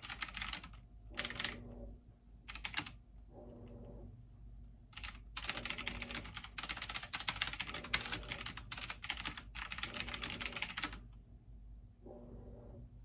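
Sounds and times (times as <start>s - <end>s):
fast typing on keyboard: 0.0s - 1.6s, 2.5s - 3.0s, 5.0s - 11.0s.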